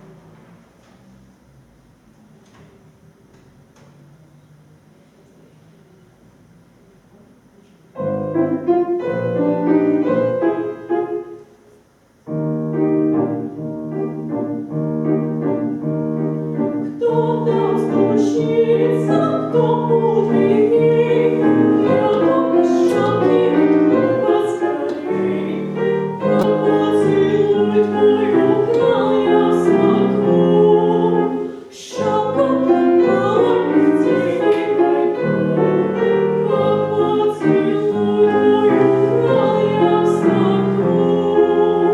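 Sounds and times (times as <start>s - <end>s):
piano: 0.0s - 41.9s
classical solo singing: 16.5s - 41.9s.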